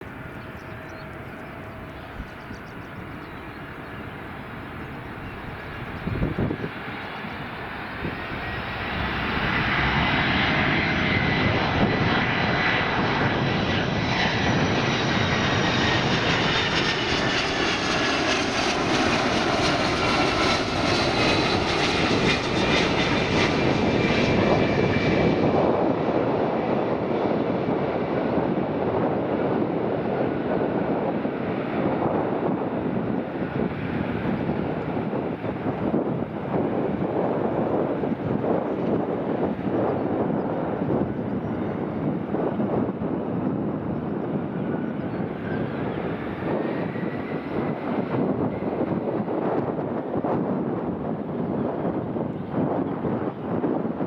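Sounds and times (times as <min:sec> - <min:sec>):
jet airliner engines: 0:00.0 - 0:54.0
turbine whine: 0:00.0 - 0:54.0.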